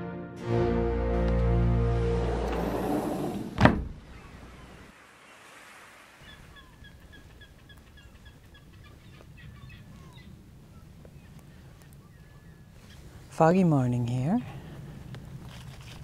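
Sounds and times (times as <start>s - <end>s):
background music: 0.0s - 3.5s
loud thump: 3.4s - 4.1s.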